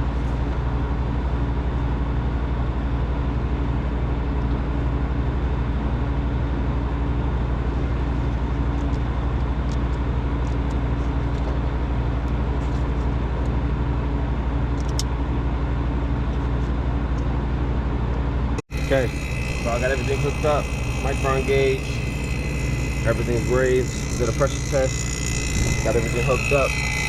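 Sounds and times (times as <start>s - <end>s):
vacuum pump humming: 18.7s - 27.0s.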